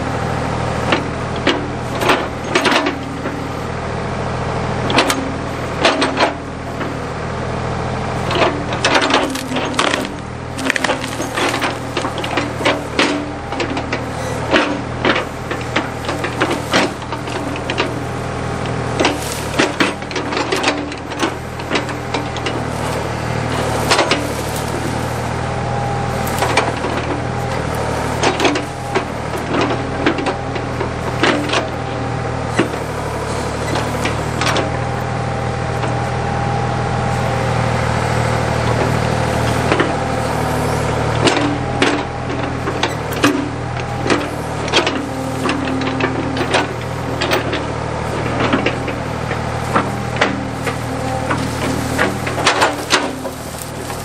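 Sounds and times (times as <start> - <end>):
backhoe engine under load: 0.0 - 54.0.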